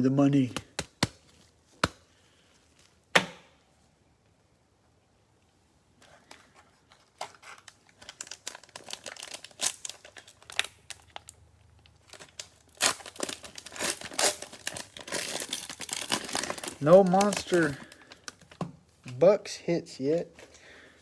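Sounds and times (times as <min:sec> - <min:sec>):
cellophane wrapper crinkling and tearing: 0:06.0 - 0:19.2.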